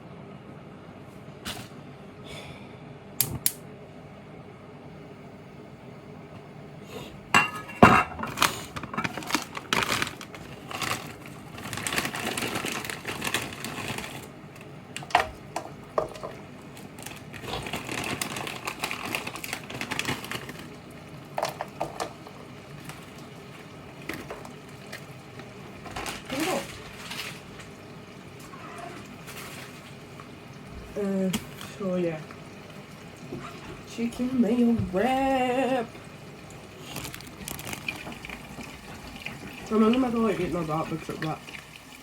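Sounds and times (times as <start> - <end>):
pan and utensils clattering: 7.3 - 14.1, 15.0 - 16.4, 21.3 - 23.3.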